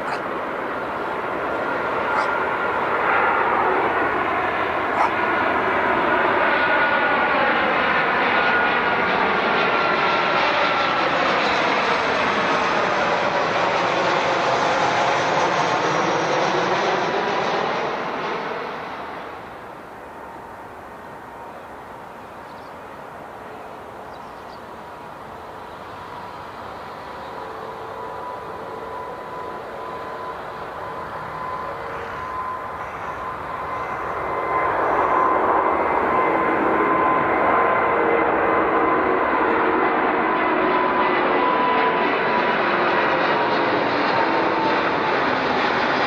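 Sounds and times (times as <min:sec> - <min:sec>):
airliner engines passing: 0:00.0 - 0:46.0.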